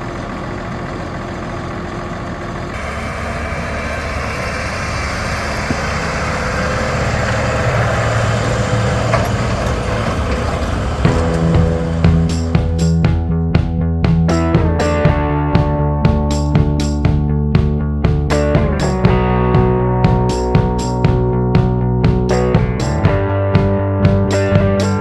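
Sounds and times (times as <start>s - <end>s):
tractor diesel engine running: 0.0s - 25.0s
music: 11.1s - 25.0s.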